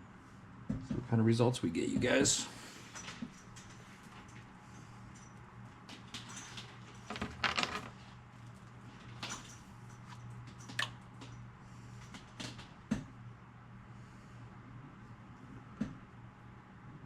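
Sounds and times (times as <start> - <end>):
steady low hum: 7.9 - 17.0.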